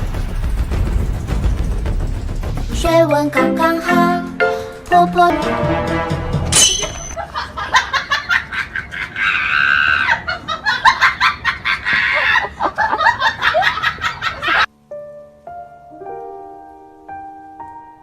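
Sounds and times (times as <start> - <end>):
person laughing hard: 7.2 - 14.7
high drawn-out cry: 9.1 - 10.3.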